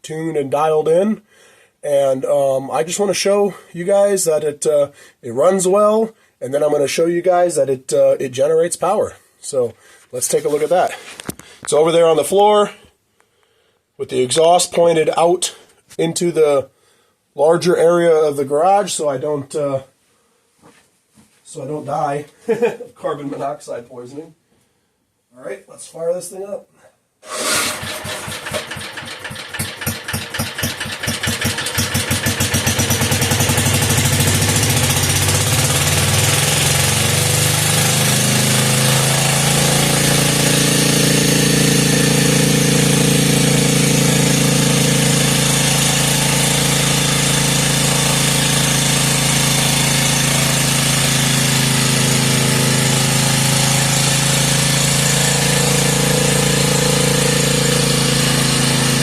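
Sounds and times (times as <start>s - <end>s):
generator engine spinning up: 27.2s - 59.0s.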